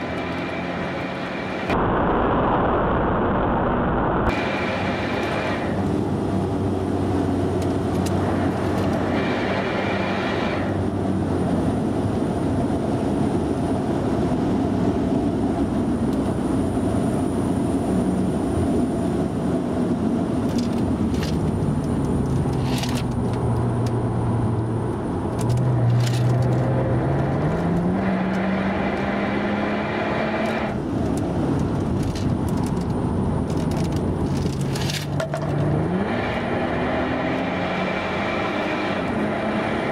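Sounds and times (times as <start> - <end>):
car engine: 0.0 - 39.9
road and wind noise: 0.0 - 39.9.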